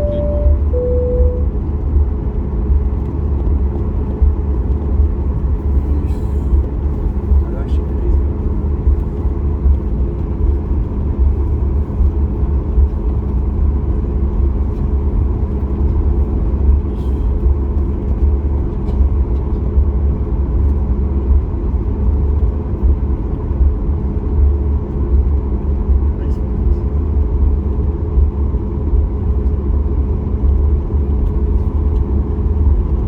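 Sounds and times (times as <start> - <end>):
steady hum tones: 0.0 - 1.7
airplane taxiing rumble: 0.0 - 33.0.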